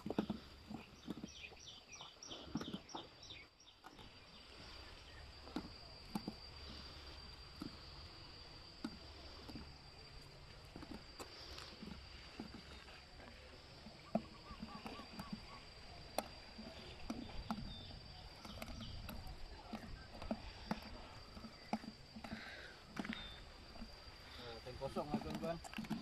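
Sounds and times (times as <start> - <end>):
bird chirping: 0.7 - 5.6, 12.6 - 21.8.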